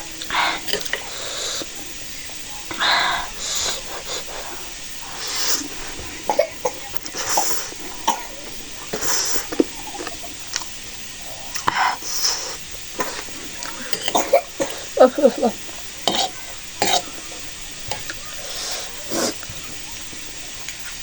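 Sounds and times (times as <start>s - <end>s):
sharp hissing breaths: 0.0s - 21.0s
chewing clicks and smacks: 8.8s - 10.8s, 11.4s - 12.2s, 19.0s - 21.0s.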